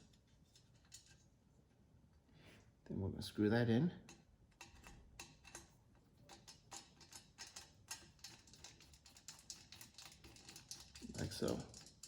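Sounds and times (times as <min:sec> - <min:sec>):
screw and tool clicking on metal: 0:06.3 - 0:12.0.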